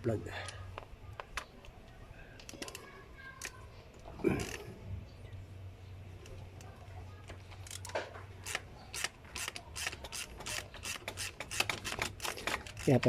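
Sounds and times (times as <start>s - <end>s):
hand tools and metal parts clicking: 6.2s - 13.0s.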